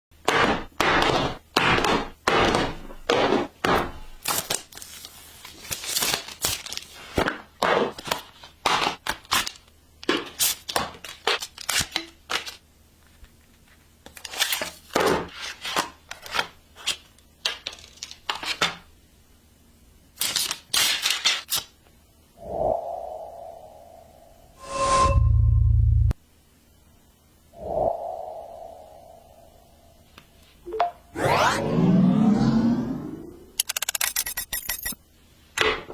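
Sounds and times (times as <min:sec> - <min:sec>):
packaging rustling and tearing: 0:04.2 - 0:07.3.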